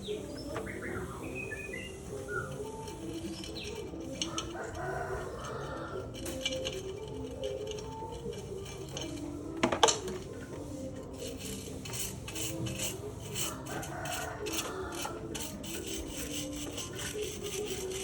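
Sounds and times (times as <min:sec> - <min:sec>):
rhythmic scraping strokes: 0:00.0 - 0:18.0
metal tools clinking: 0:02.4 - 0:10.3.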